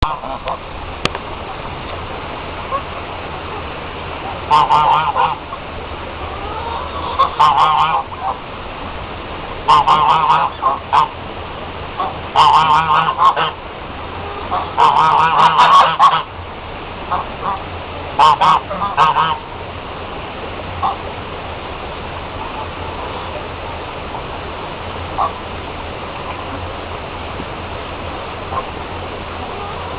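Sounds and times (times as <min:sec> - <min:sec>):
running water: 0:00.0 - 0:29.9.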